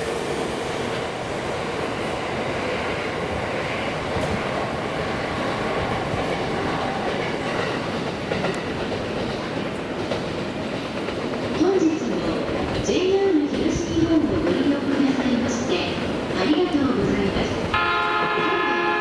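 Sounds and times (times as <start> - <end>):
train wheels on rails: 0.0 - 19.0.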